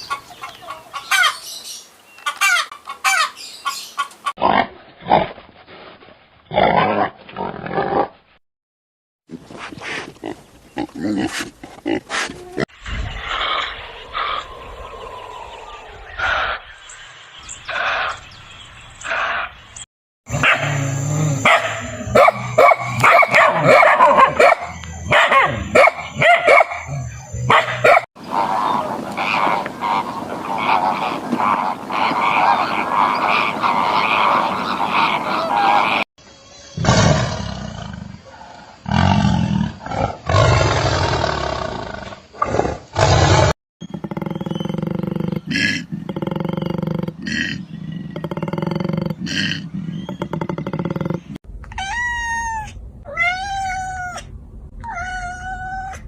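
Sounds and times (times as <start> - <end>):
many overlapping animal calls: 12.7 - 23.0, 23.6 - 40.5, 43.8 - 52.1
animal calls: 20.4 - 36.1.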